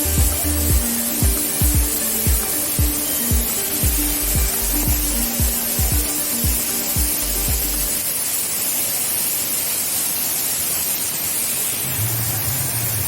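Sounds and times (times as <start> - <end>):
low bass line: 0.0 - 0.9, 3.8 - 6.1, 7.0 - 7.9
background music: 0.0 - 8.0
waterfall rushing: 0.0 - 13.0.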